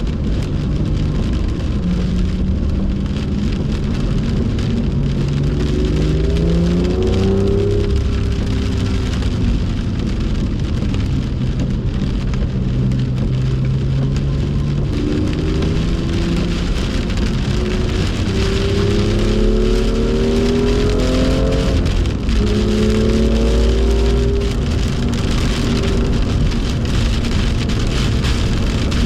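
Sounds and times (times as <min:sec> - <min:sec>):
car engine accelerating: 0:00.0 - 0:29.0
heavy rain hissing: 0:14.2 - 0:29.0.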